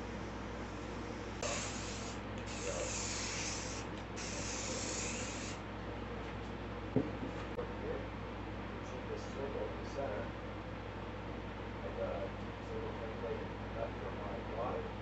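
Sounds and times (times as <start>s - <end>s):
aerosol spray can hissing: 1.4s - 5.6s.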